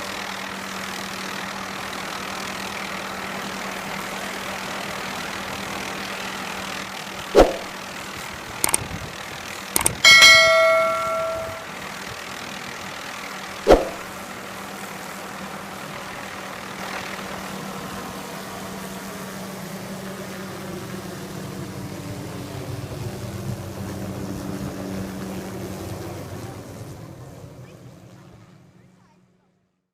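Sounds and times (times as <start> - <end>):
sharp knock: 7.4 - 7.7, 8.6 - 8.9, 9.8 - 11.7, 13.7 - 14.0
helicopter engine drone: 8.6 - 11.7, 15.2 - 27.2
ringing metallic clang: 9.8 - 11.7.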